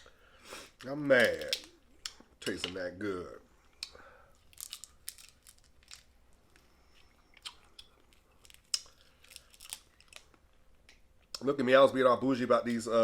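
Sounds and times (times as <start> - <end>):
crab shell cracking: 1.1 - 2.2, 3.8 - 6.1, 7.4 - 10.3.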